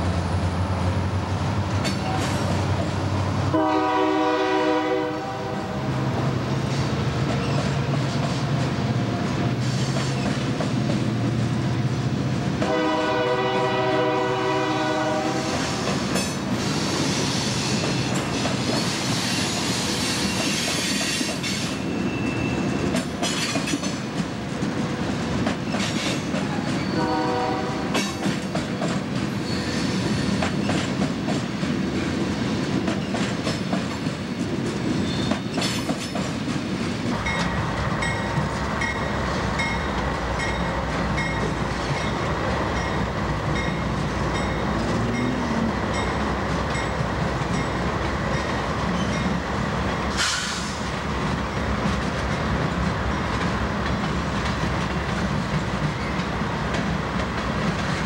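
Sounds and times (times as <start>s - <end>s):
train cars rumbling past: 0.0s - 58.0s
train horn blasts: 3.5s - 5.9s, 12.6s - 15.7s, 26.8s - 28.1s
wheels clacking over rail joints: 15.0s - 58.0s
wheels squealing: 16.6s - 23.5s.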